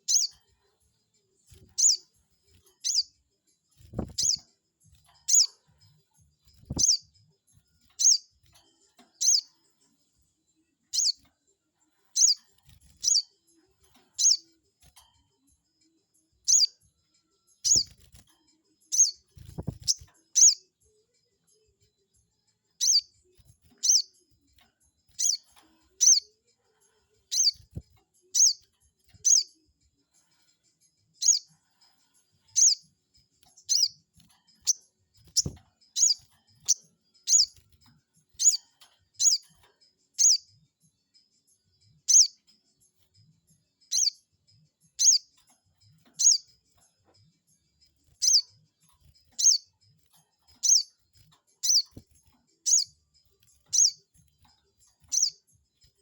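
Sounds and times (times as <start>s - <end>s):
bird chirping sharp high calls: 0.0s - 0.3s, 1.6s - 2.0s, 2.8s - 3.1s, 3.9s - 4.4s, 5.3s - 5.6s, 6.7s - 7.0s, 8.0s - 8.3s, 9.2s - 9.5s, 10.9s - 11.2s, 12.2s - 12.4s, 13.0s - 13.2s, 14.2s - 14.4s, 16.5s - 16.7s, 17.6s - 18.1s, 18.9s - 20.6s, 22.8s - 23.1s, 23.8s - 24.2s, 25.1s - 26.3s, 27.3s - 27.8s, 28.4s - 28.6s, 29.2s - 29.5s, 31.2s - 31.5s, 32.5s - 32.9s, 33.6s - 34.0s, 34.6s - 37.6s, 38.4s - 38.6s, 39.2s - 39.5s, 40.2s - 40.4s, 42.1s - 42.4s, 43.9s - 44.2s, 45.0s - 45.3s, 46.2s - 46.5s, 48.2s - 48.6s, 49.4s - 49.7s, 50.6s - 50.9s, 51.6s - 52.0s, 52.6s - 53.0s, 53.7s - 54.0s, 55.0s - 55.4s.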